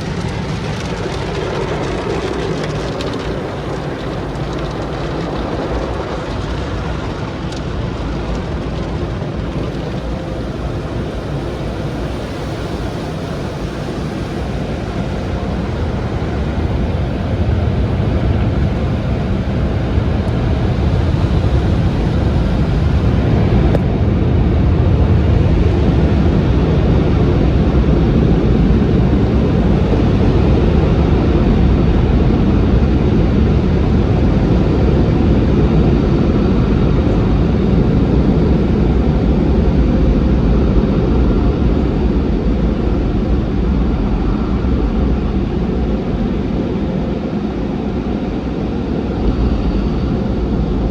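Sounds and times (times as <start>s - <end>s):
car wash equipment rushing: 0.0s - 30.9s.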